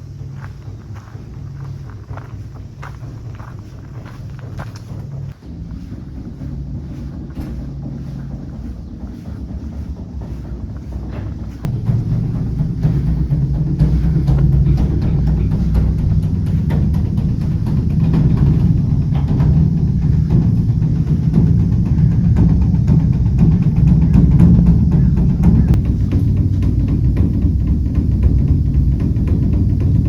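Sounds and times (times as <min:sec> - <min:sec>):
large drum beaten rapidly: 0:00.0 - 0:30.0.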